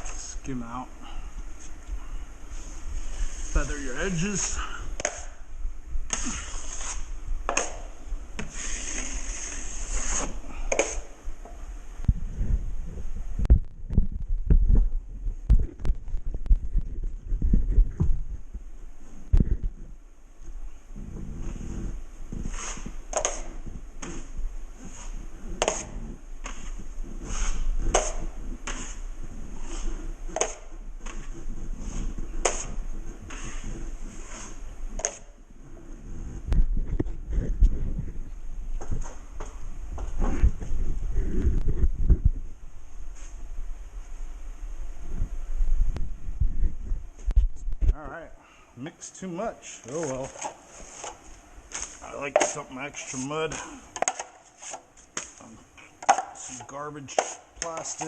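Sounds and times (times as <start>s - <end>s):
drywall blade scraping compound: 2.6s - 5.4s, 6.1s - 11.1s, 21.0s - 36.4s, 49.9s - 55.6s, 56.2s - 58.0s.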